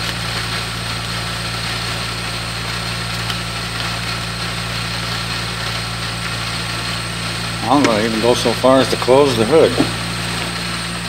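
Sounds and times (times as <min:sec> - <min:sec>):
car engine idling: 0:03.3 - 0:11.0.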